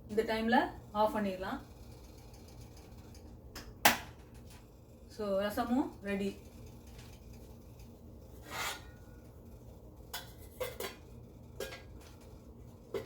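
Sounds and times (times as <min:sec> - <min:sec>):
pot scraping: 0:06.1 - 0:13.0.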